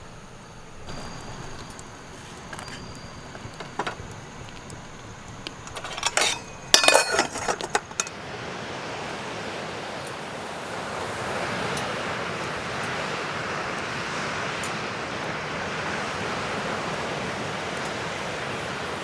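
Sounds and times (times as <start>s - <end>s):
utensils clinking against dishes: 0.0s - 8.2s.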